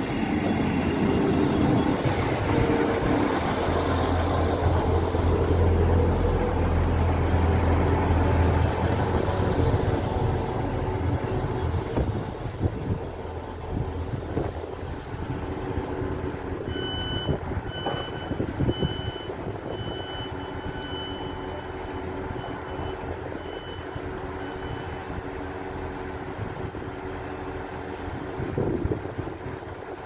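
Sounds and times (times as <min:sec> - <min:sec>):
engine hum: 0:00.0 - 0:30.0.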